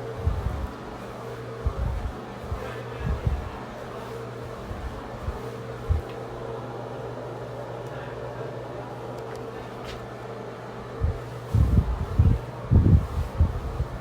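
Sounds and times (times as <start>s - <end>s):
low machine hum: 0.0s - 14.0s
soft low thumps: 0.2s - 0.7s, 1.6s - 3.6s, 4.5s - 6.1s, 11.0s - 14.0s.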